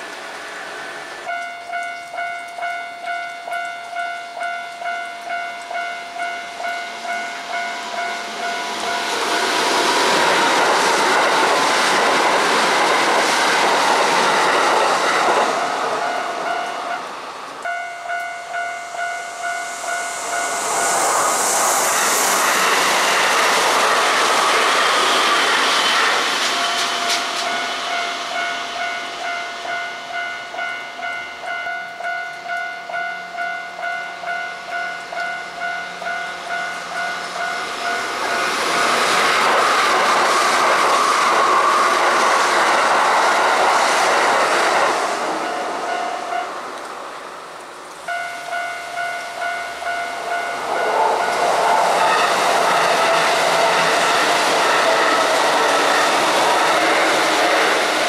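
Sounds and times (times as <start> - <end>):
train wheels on rails: 0.0 - 58.0
level crossing warning bell: 1.0 - 9.6, 15.6 - 21.0, 26.5 - 38.9, 45.4 - 46.6, 48.0 - 53.2
high hiss: 6.0 - 30.8, 33.2 - 58.0.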